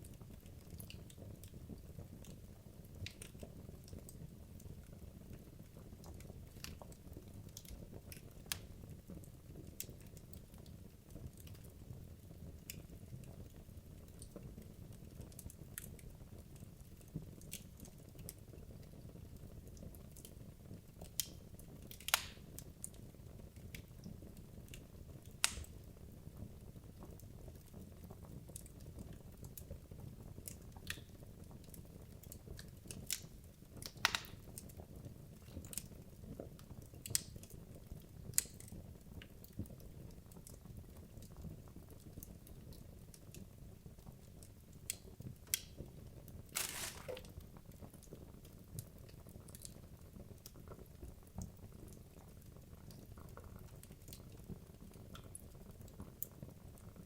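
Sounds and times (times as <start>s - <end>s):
wood crackling and popping: 3.0s - 8.7s, 20.9s - 25.9s, 30.3s - 34.8s, 35.4s - 39.8s, 44.0s - 48.2s.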